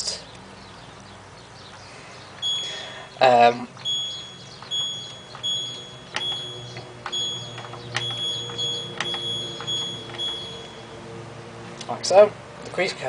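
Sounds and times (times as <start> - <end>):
short high-pitched beeps: 2.4 - 3.2, 3.8 - 10.9
button clicks: 3.8 - 10.8.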